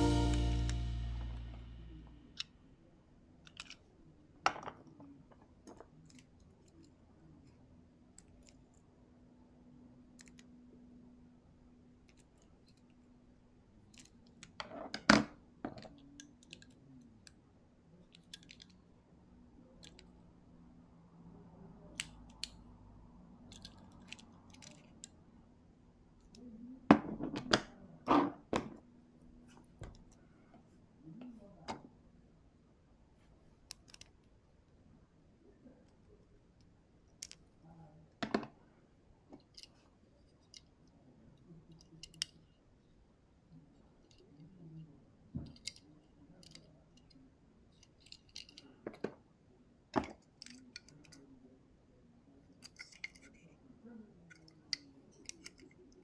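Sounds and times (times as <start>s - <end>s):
toy parts clicking and knocking: 18.0s - 18.8s, 23.5s - 25.2s, 47.8s - 49.1s, 52.6s - 53.4s, 54.3s - 56.0s.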